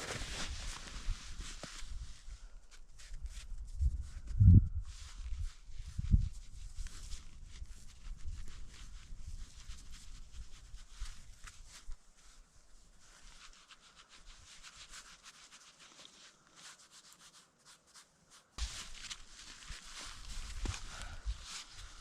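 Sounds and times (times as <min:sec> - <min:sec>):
crunching and scraping on snow: 0:00.0 - 0:04.1, 0:04.9 - 0:22.0
dull footfalls: 0:18.6 - 0:21.2.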